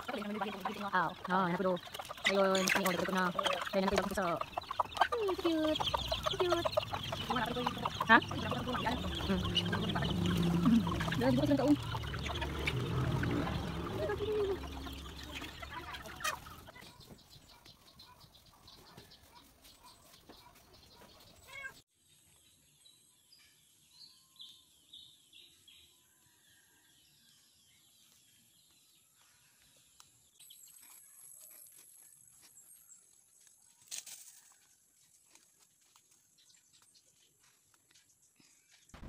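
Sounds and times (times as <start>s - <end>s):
chickens clucking: 0.0s - 21.4s
chicks peeping: 0.0s - 21.7s.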